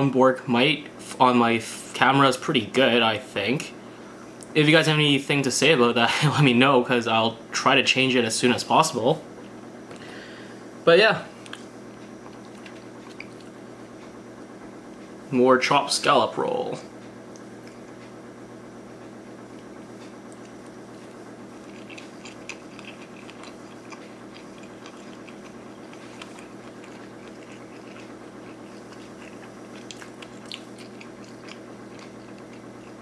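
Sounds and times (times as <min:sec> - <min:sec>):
steady hum: 0:00.0 - 0:33.0
person chewing: 0:11.4 - 0:14.5, 0:17.3 - 0:18.0, 0:19.5 - 0:33.0.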